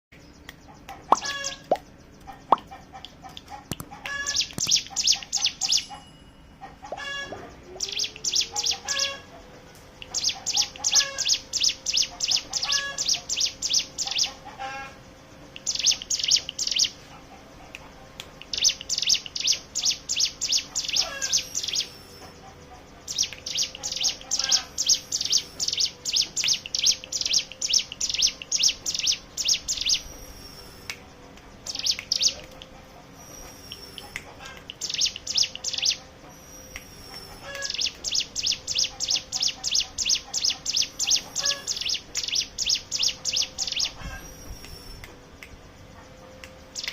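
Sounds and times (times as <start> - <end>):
faint bird calls: 0.4 - 6.0, 6.6 - 45.1
bird rattling trill: 1.1 - 1.7.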